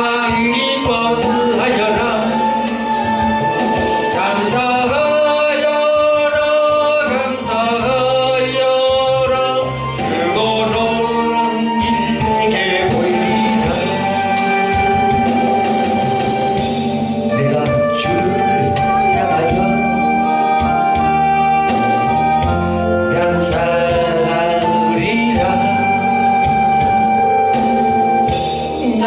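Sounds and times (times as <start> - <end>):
person singing gospel song: 0.0 - 15.6, 17.3 - 21.8, 22.4 - 26.6
instrumental accompaniment: 0.0 - 29.0.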